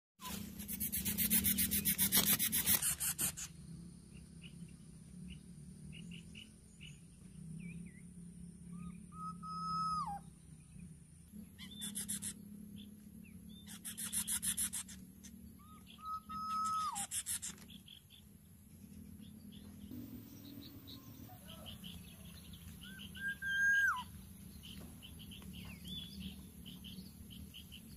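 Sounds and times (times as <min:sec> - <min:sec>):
fast dry rasping bursts: 0:00.4 - 0:03.6
low steady hum: 0:18.0 - 0:27.9
whistled bird note: 0:19.9 - 0:27.1.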